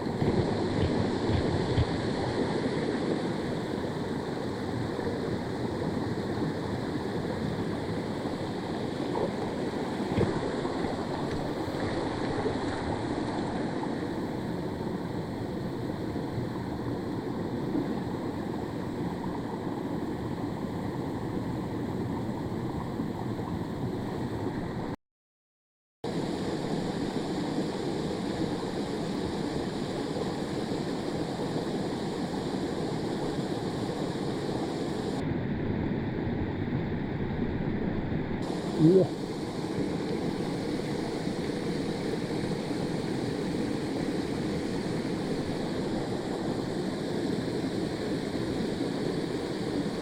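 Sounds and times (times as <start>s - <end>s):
stream rushing over rocks: 0.0s - 20.6s, 38.4s - 50.0s.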